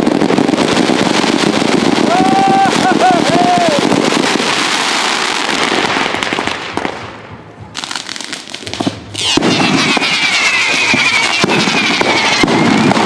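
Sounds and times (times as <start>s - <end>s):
fireworks crackling and banging: 0.0s - 13.0s
falling firework whistle: 8.8s - 13.0s.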